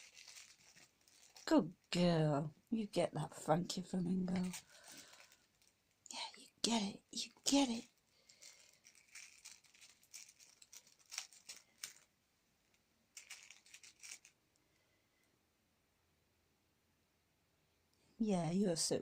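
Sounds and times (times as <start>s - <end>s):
rustling and crinkling of toy: 0.0s - 14.9s.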